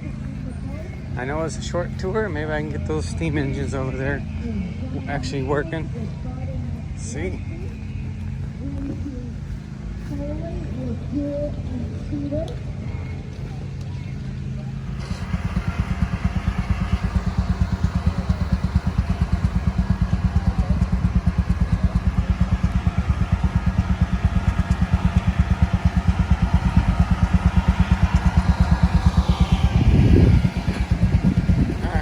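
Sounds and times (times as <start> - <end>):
steam engine beating: 14.8 - 32.0.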